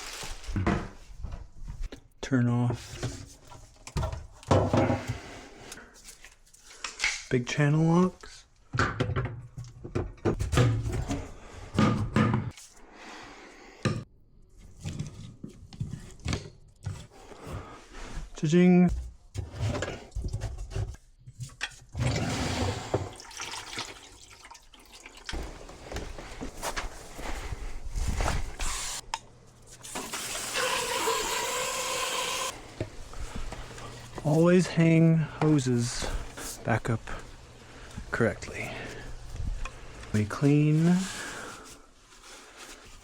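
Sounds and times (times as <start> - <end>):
water running at sink: 22.0 - 25.6, 29.8 - 32.6.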